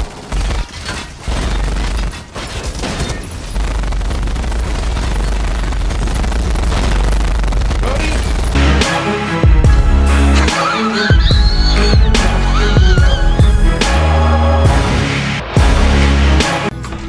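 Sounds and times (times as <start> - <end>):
heavy bass rumble: 3.7 - 10.5, 11.2 - 16.7.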